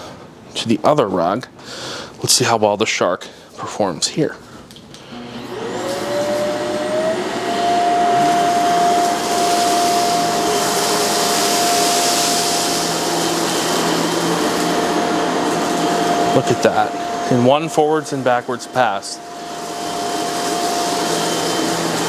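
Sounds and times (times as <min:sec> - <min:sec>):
vacuum cleaner motor whine: 0:05.0 - 0:22.0.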